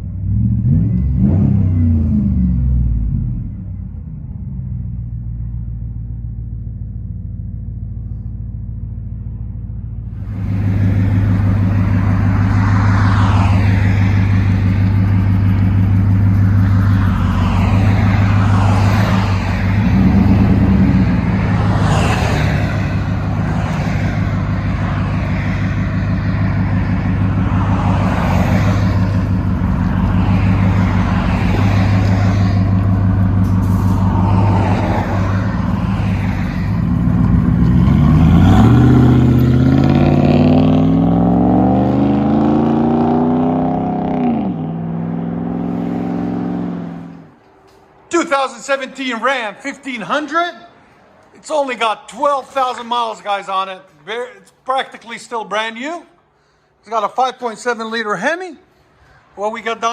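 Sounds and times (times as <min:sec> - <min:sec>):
engine running and revving: 0:00.0 - 0:04.7, 0:10.1 - 0:47.4.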